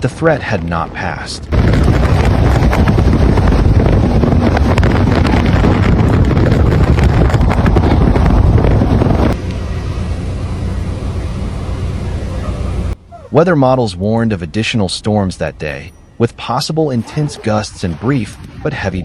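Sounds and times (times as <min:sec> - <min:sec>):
strong wind buffeting microphone: 0:00.4 - 0:09.4.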